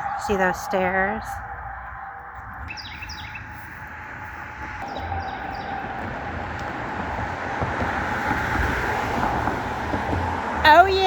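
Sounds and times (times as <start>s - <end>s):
bird chirps: 0.0s - 6.8s
passing vehicle rumble: 0.0s - 11.0s
vehicle whine: 0.0s - 11.0s.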